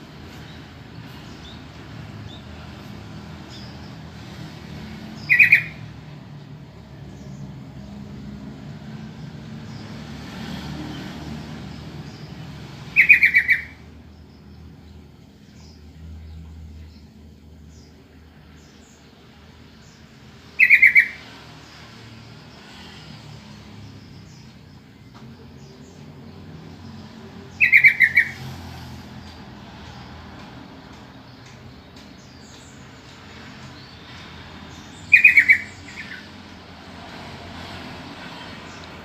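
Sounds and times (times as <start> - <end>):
bird call of rapid notes: 5.2 - 5.8, 12.9 - 13.8, 20.6 - 21.2, 27.6 - 28.4, 35.1 - 36.2.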